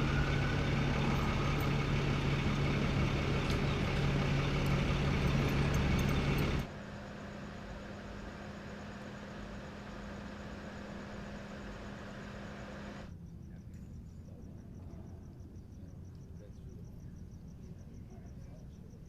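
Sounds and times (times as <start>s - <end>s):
vehicle engine humming: 0.0s - 13.1s.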